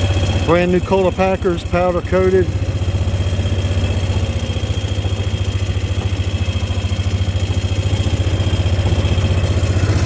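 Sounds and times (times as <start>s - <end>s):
vehicle engine droning: 0.0s - 10.0s.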